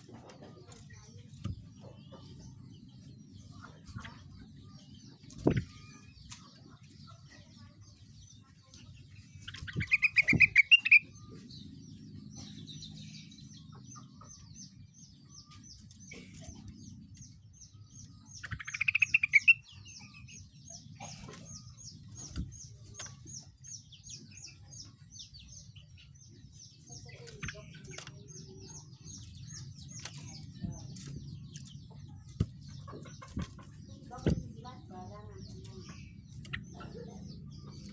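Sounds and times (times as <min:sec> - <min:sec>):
songbird trilling: 0:09.5 - 0:11.4, 0:17.6 - 0:24.6.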